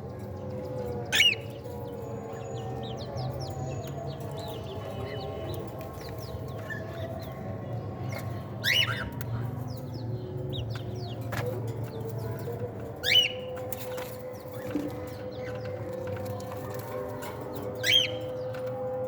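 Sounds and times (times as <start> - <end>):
cockatiels chirping: 1.1 - 1.5, 8.1 - 9.2, 13.0 - 18.5.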